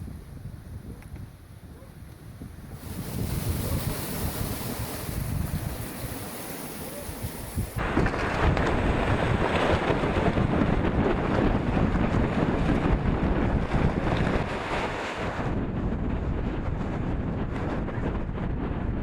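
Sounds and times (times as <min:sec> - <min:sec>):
wind buffeting microphone: 0:00.0 - 0:19.0
water rushing along hulls: 0:02.8 - 0:11.4, 0:12.6 - 0:15.5.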